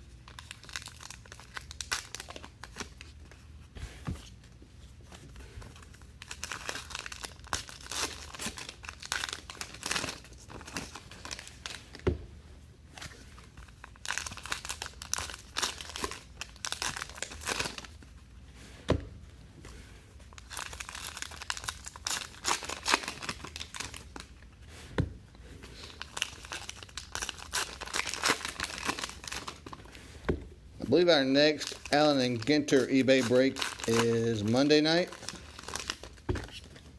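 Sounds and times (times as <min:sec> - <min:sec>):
card pack wrappers tearing and crinkling: 0:00.0 - 0:03.0, 0:06.2 - 0:11.9, 0:13.7 - 0:18.0, 0:20.3 - 0:24.4, 0:25.8 - 0:29.8, 0:30.9 - 0:36.9.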